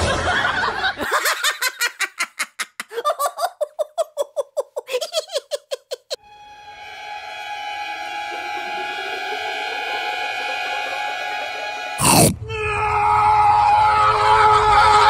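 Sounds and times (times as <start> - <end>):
person giggling: 1.1 - 6.2
steady musical tones: 6.4 - 12.0.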